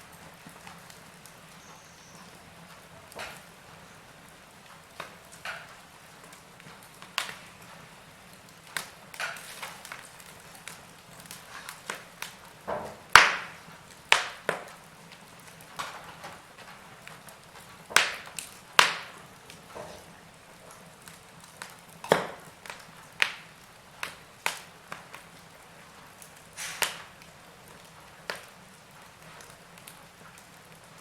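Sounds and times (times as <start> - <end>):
wood fire crackling: 0.0 - 31.0
faint hiss: 24.6 - 30.1.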